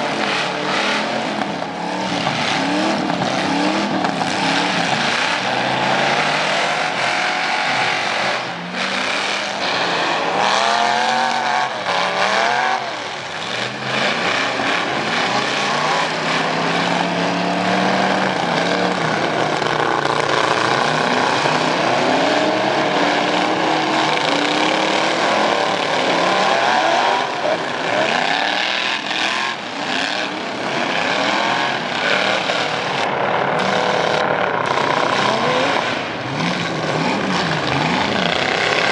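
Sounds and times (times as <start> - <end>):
truck engines revving: 0.0 - 38.9.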